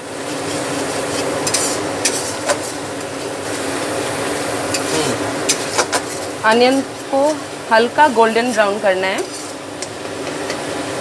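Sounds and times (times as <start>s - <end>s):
onion sizzling in hot oil: 0.0s - 11.0s
metal spatula scraping pan: 0.3s - 3.7s, 4.7s - 7.4s, 8.5s - 9.7s.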